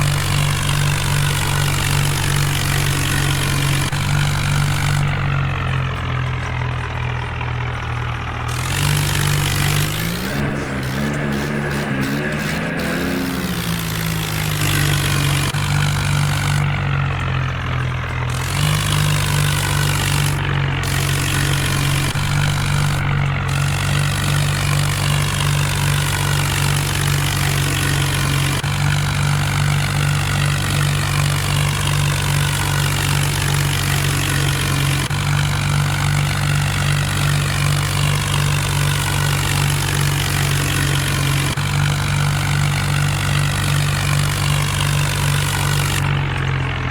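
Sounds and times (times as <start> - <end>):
tractor diesel engine running: 0.0 - 46.9.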